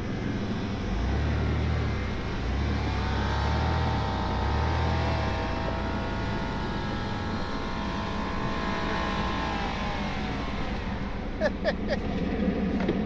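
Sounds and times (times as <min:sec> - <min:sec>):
vehicle engine running under load: 0:00.0 - 0:13.0.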